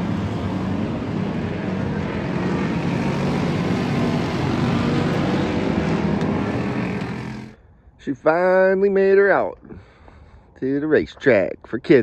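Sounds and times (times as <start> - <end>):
racing car engines droning: 0.0 - 7.6.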